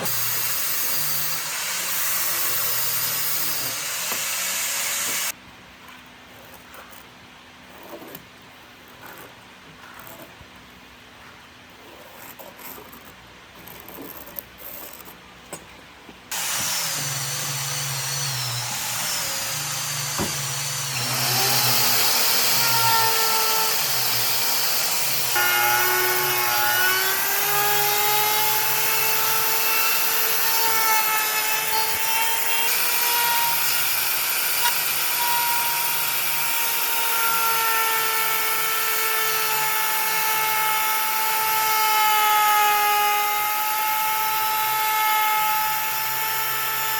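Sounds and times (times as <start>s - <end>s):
power tool whining on wood: 0.0s - 5.4s, 16.3s - 46.9s.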